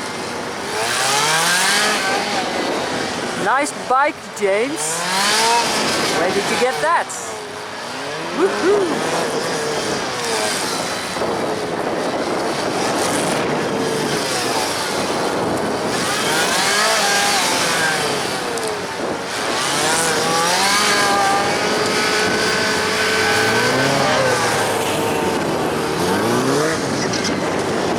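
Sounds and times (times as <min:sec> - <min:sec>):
motorcycle engine revving: 0:00.0 - 0:03.8, 0:04.7 - 0:27.9
wind on microphone: 0:00.0 - 0:27.9.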